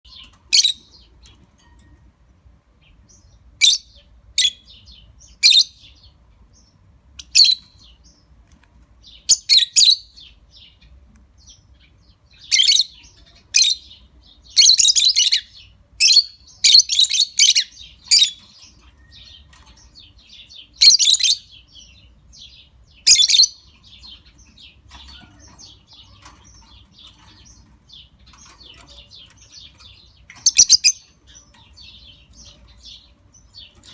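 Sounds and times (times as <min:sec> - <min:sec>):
lovebirds chirping: 0:00.0 - 0:33.9.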